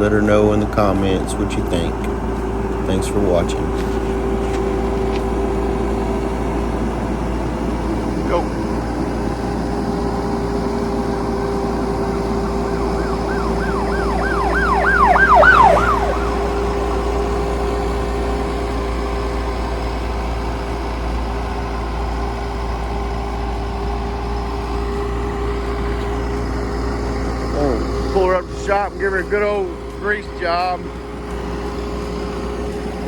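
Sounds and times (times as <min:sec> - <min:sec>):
excavator diesel engine running: 0:00.0 - 0:33.0
rising and falling squeals: 0:08.6 - 0:18.7.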